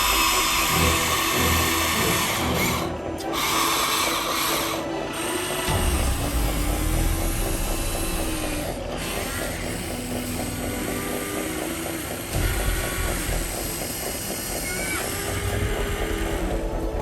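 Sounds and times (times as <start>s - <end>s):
model gearboxes whirring: 0.0s - 17.0s
low rumble: 5.7s - 9.8s.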